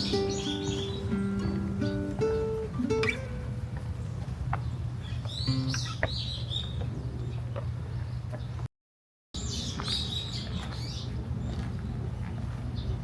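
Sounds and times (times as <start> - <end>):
small birds chirping: 0.0 - 8.7, 9.4 - 13.0.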